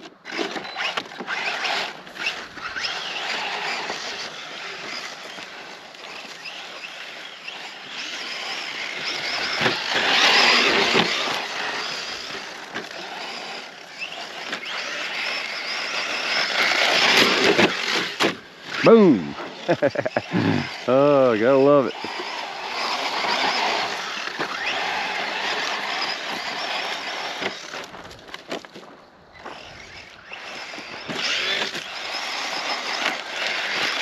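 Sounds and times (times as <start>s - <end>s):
electric motor whine: 0.0s - 28.7s, 29.3s - 34.0s
tyres grinding on gravel: 0.0s - 34.0s.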